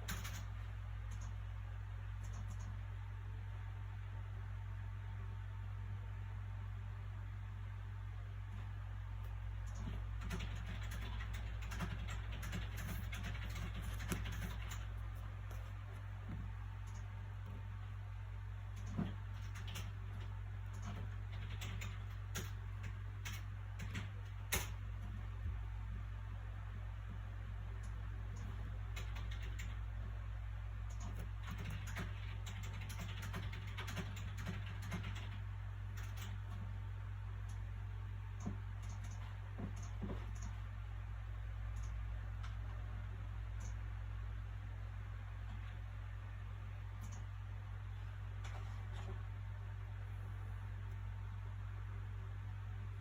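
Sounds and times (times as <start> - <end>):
small clicks: 0.0 - 1.4, 2.2 - 2.8, 8.5 - 17.6, 30.8 - 36.7, 38.4 - 40.6, 41.7 - 42.8, 43.6 - 43.9, 47.0 - 47.4
low background hum: 0.0 - 53.0.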